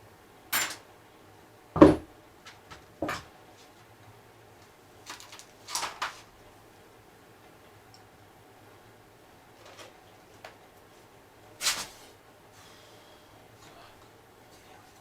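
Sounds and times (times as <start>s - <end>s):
knocks and clinks of tools: 0.5s - 0.9s.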